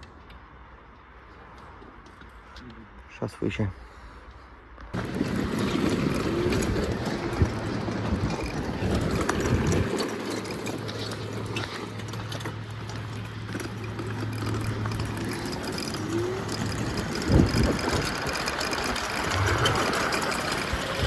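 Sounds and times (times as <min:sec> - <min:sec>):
road noise: 0:00.0 - 0:21.0
vehicle engine hum: 0:04.9 - 0:21.0.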